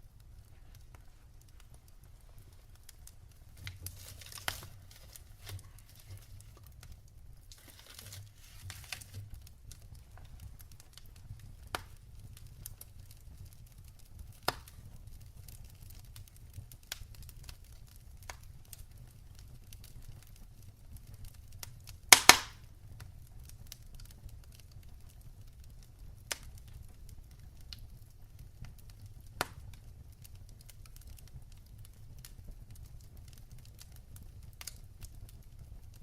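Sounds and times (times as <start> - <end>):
soft hiss of burning: 0.0 - 36.0
wood fire crackling and popping: 0.0 - 36.0.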